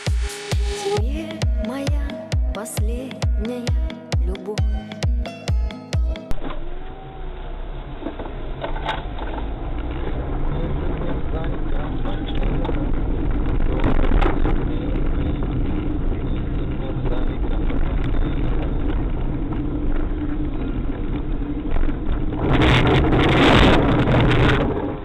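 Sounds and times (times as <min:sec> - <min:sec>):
loud rushing noise: 0:00.0 - 0:01.1
car engine and road noise: 0:06.3 - 0:25.0.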